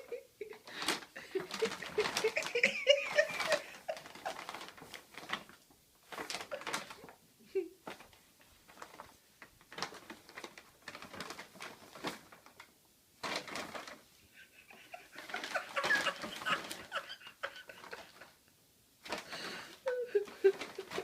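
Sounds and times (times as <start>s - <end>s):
bag crinkling and rustling: 0.6s - 7.2s, 7.8s - 14.0s, 15.2s - 17.0s, 19.0s - 21.0s.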